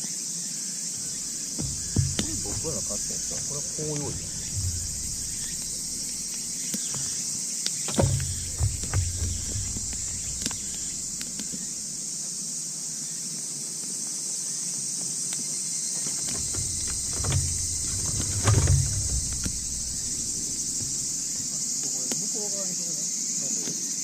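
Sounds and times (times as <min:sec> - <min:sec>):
crickets chirring: 0:00.4 - 0:24.0
low bumps: 0:01.0 - 0:12.4, 0:16.1 - 0:21.8.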